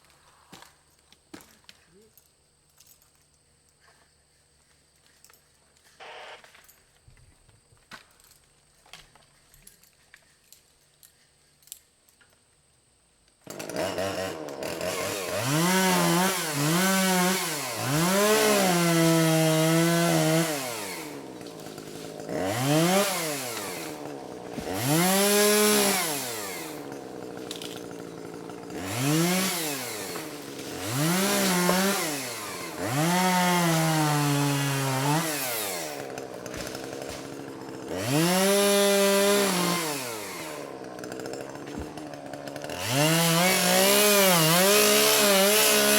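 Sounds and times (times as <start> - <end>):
chainsaw revving: 6.0 - 6.4, 13.4 - 45.9.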